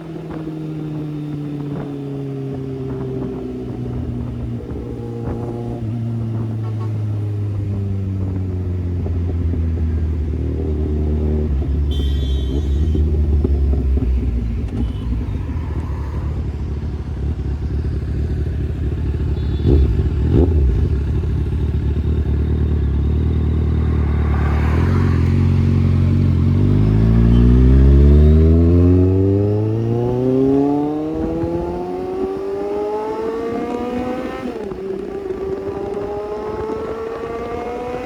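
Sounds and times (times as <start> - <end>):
motorcycle accelerating: 0.0 - 38.0
motorcycle engine rumbling: 0.0 - 38.0.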